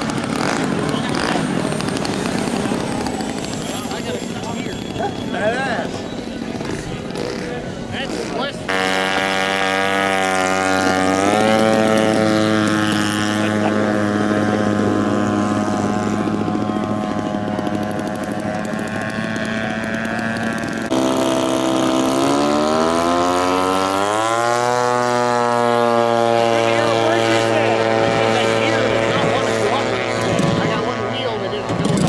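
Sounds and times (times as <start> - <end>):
model airplane engines running: 0.0 - 32.0.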